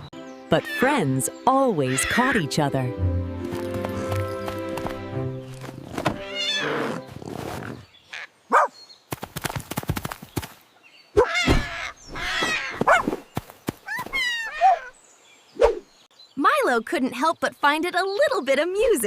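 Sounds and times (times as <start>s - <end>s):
music: 0.0s - 7.1s.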